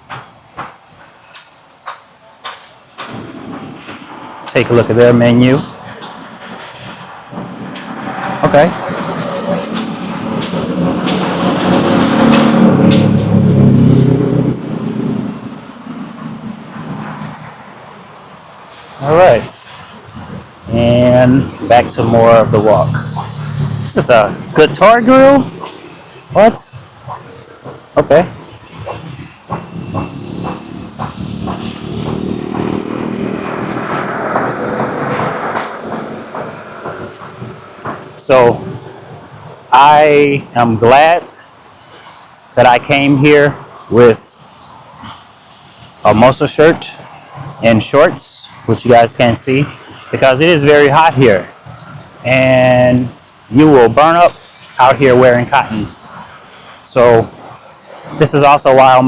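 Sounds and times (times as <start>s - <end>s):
vehicle engine passing by: 7.8s - 17.7s, 20.7s - 26.1s, 29.6s - 39.1s.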